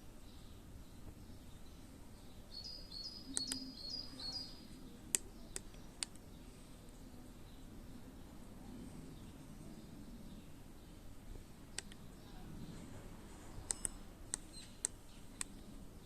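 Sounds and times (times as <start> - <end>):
small bird chirping: 0.1 - 8.4, 9.1 - 16.0
sharp clicks: 3.3 - 3.7, 5.1 - 6.3, 11.7 - 12.1, 13.6 - 15.7.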